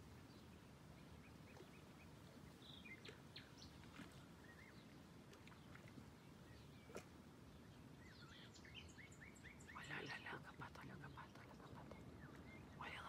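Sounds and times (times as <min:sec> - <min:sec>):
low steady background noise: 0:00.0 - 0:13.0
faint small-bird chirps: 0:06.4 - 0:13.0.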